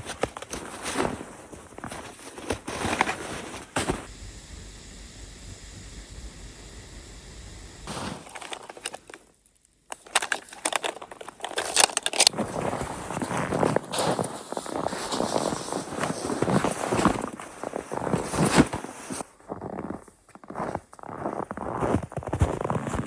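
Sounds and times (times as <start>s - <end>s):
steady hiss: 4.0s - 9.9s.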